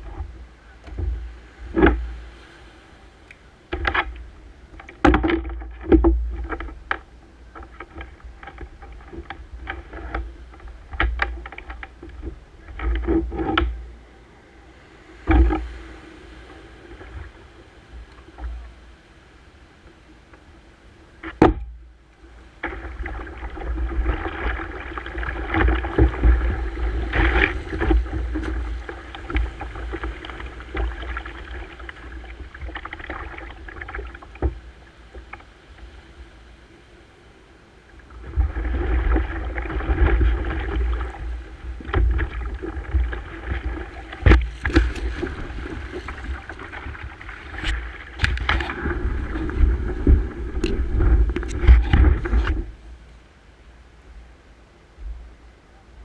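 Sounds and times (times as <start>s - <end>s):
wind rumble on microphone: 0.0s - 53.1s
paddle splashes and knocks: 3.7s - 13.8s, 15.2s - 15.8s, 21.2s - 21.8s, 22.6s - 35.5s, 38.2s - 52.8s.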